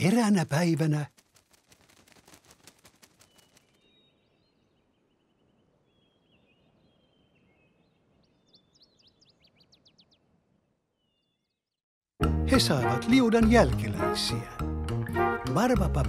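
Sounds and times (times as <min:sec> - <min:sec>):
faint bird twittering: 0:03.0 - 0:10.3.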